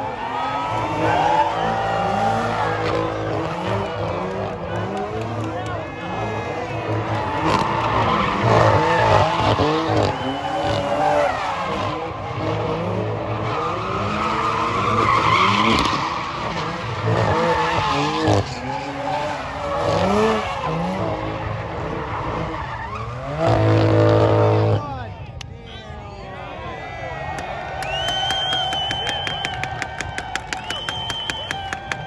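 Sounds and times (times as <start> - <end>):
car engine revving: 0.0 - 25.2
tires squealing and skidding: 0.0 - 25.2, 26.5 - 32.0.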